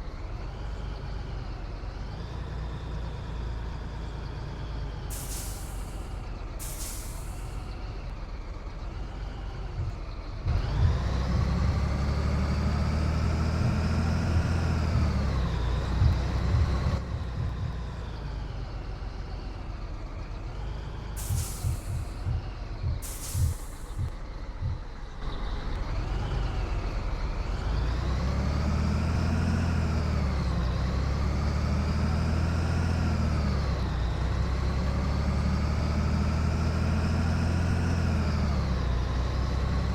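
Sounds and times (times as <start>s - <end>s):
diesel truck engine: 0.0s - 39.9s
air brake hisses: 5.1s - 7.7s, 21.2s - 22.3s, 23.0s - 24.1s.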